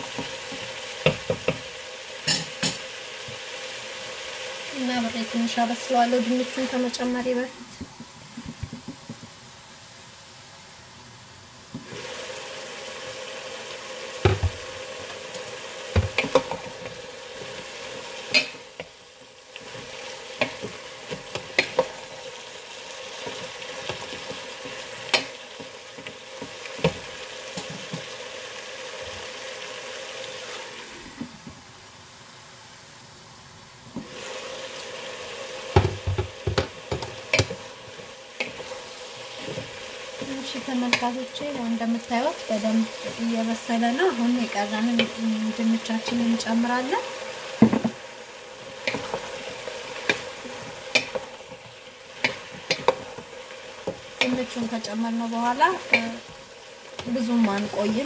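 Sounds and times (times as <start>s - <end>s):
vegetables sizzling in oil: 0.0s - 58.0s
wooden spoon knocking on pot: 0.1s - 1.7s, 7.8s - 9.4s, 14.2s - 14.6s, 15.9s - 16.7s, 20.4s - 22.0s, 26.4s - 28.1s, 35.7s - 37.7s, 39.4s - 41.2s, 47.6s - 48.0s, 52.2s - 54.8s.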